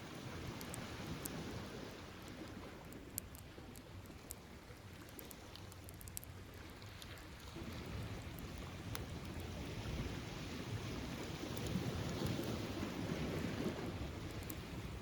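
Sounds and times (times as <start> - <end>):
surf washing up a beach: 0.0 - 3.6, 7.2 - 15.0
bonfire crackling: 7.8 - 14.7.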